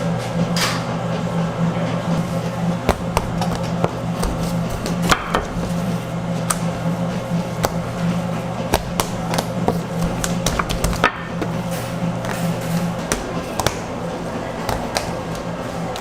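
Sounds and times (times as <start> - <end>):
low machine hum: 0.0 - 16.0
food preparation knocks and taps: 2.8 - 5.8, 8.7 - 11.6.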